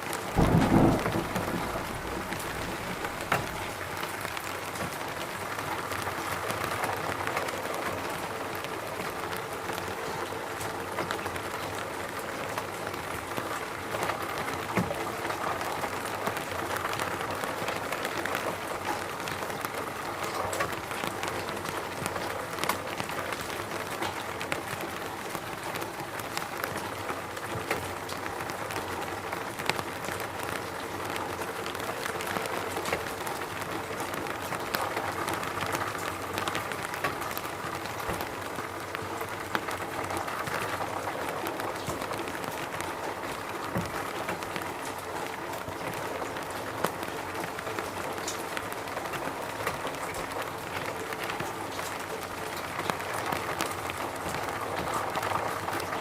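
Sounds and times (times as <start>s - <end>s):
rain hiss: 0.2s - 6.6s
raindrops ticking: 0.2s - 56.0s.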